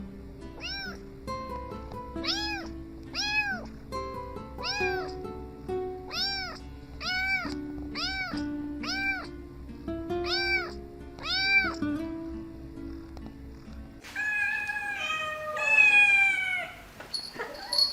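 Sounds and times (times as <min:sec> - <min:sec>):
kitten meowing: 0:00.6 - 0:01.0, 0:02.2 - 0:03.7, 0:04.6 - 0:05.2, 0:06.1 - 0:09.3, 0:10.2 - 0:11.8, 0:14.1 - 0:16.8.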